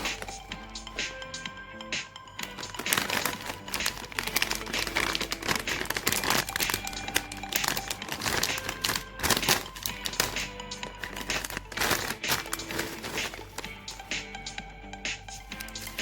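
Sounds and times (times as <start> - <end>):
plastic wrappers crinkling: 0.0 - 1.4, 2.4 - 14.7, 15.3 - 16.0
background music: 0.0 - 16.0.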